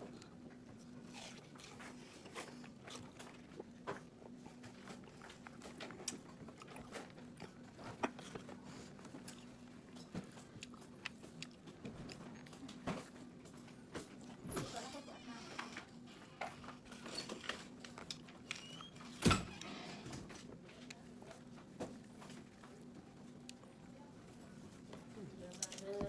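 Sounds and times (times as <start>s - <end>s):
watermelon being bitten and chewed: 0.0s - 13.2s.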